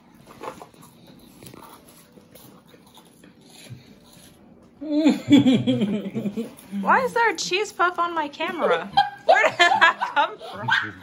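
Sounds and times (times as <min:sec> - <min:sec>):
crunching and chewing: 0:00.0 - 0:04.8.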